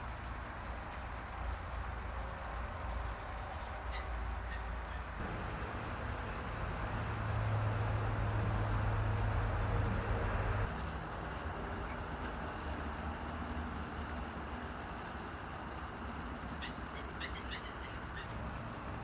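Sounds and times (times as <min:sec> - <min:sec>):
low engine hum: 0:00.0 - 0:19.0
vehicle rush: 0:04.2 - 0:10.8.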